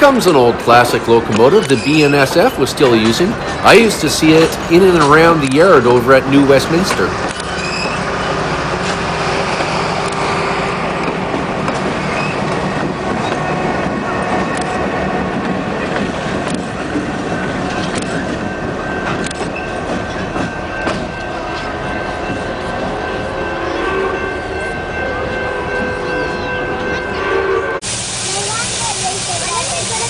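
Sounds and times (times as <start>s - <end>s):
train wheel clicks: 0.0s - 23.2s
train rumbling past: 0.0s - 30.0s
wheel squeal: 7.4s - 10.4s, 12.0s - 12.6s.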